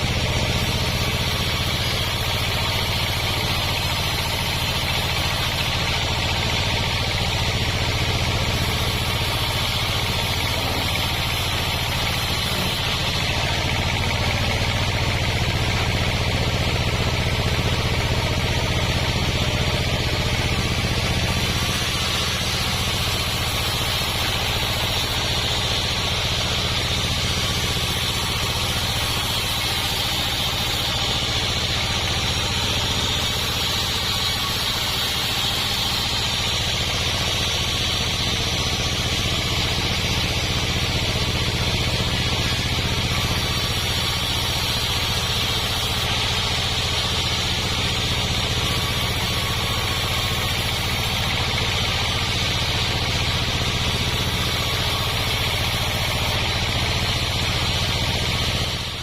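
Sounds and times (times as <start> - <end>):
sawmill engine hum: 0.0 - 59.0
sawmill hiss: 0.0 - 59.0.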